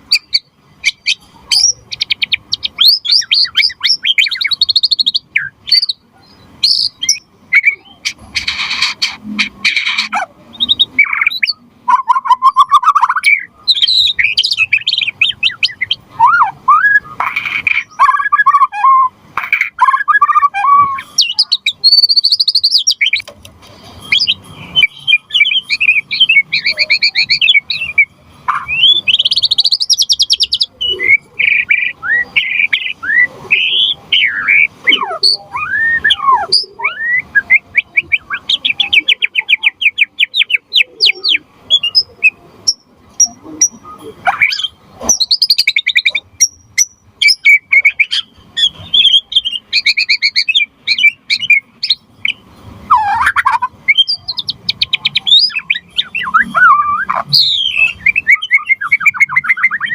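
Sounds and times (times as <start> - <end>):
songbird singing whistles and trills: 0.0 - 23.3, 24.0 - 59.9
sharp bird clicks: 6.6 - 10.2, 17.2 - 18.6, 19.4 - 20.5.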